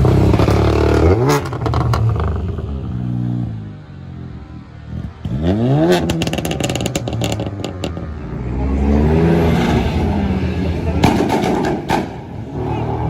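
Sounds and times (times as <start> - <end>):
car engine revving: 0.0 - 3.6, 4.9 - 13.0
exhaust pops and crackles: 6.0 - 8.0.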